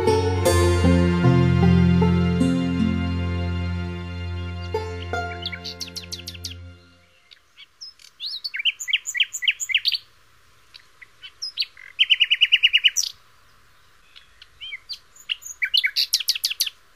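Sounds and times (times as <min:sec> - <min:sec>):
songbirds singing: 0:04.2 - 0:16.9.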